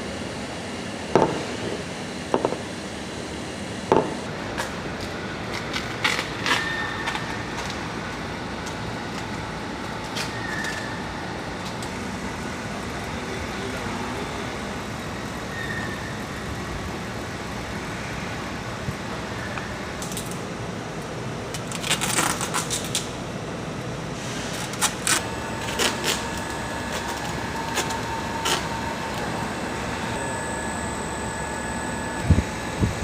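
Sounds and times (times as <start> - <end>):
steady whine: 0.0 - 5.6, 23.4 - 33.0
machinery humming: 0.0 - 21.5, 23.2 - 33.0.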